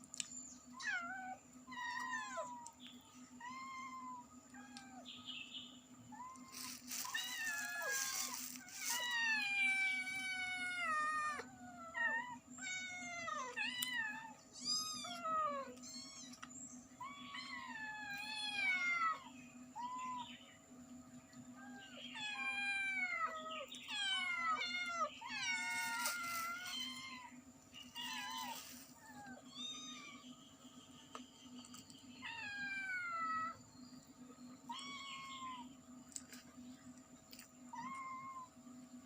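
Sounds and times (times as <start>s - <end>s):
cat and kittens meowing: 0.7s - 5.1s, 6.0s - 20.3s, 21.5s - 30.3s, 32.2s - 33.6s, 34.6s - 35.7s, 37.6s - 38.6s.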